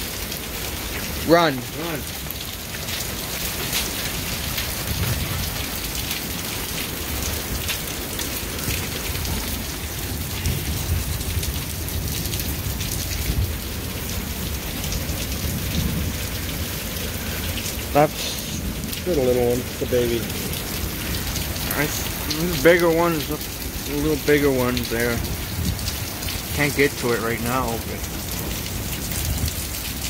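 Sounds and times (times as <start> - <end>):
heavy rain on cars and pavement: 0.0 - 30.0
low thunder rumble: 4.2 - 7.7, 8.5 - 26.8.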